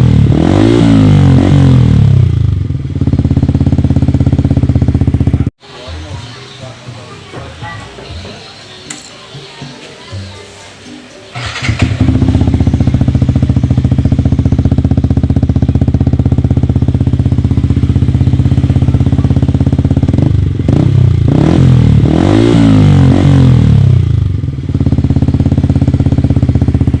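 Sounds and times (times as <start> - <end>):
motorcycle engine idling and revving: 0.0 - 5.8, 11.3 - 27.0.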